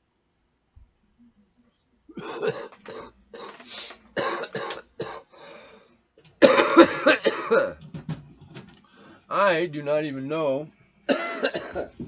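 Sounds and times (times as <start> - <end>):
person coughing: 2.1 - 5.3, 6.4 - 7.8, 11.1 - 12.0.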